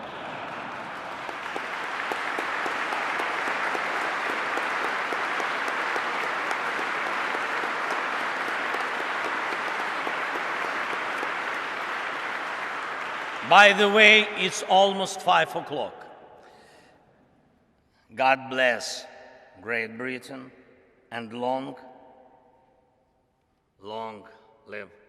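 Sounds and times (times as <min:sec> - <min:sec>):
large audience applauding: 0:00.0 - 0:15.5.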